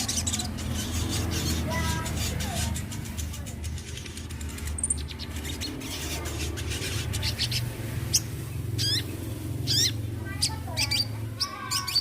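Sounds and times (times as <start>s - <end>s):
sunbird singing high chips: 4.8s - 12.0s.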